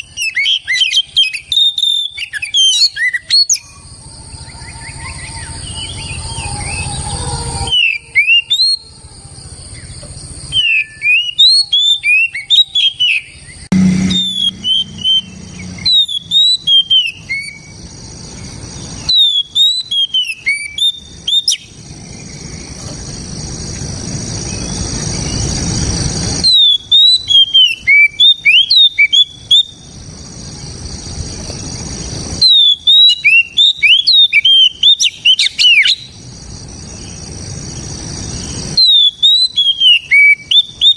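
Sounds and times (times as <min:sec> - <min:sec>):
magpie-robin singing whistled notes: 0:00.0 - 0:03.8, 0:04.4 - 0:07.0, 0:10.5 - 0:17.8, 0:18.4 - 0:22.7, 0:26.4 - 0:29.9, 0:32.4 - 0:36.2, 0:38.3 - 0:40.9.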